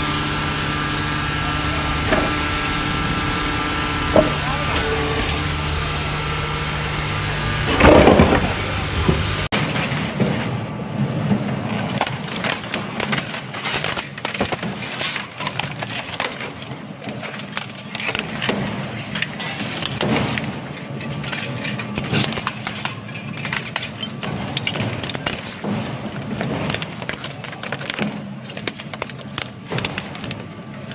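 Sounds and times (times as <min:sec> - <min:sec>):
machine engine running: 0:00.0 - 0:09.6
loud crash: 0:00.0 - 0:12.2
crushing machine cracking material: 0:00.0 - 0:30.9.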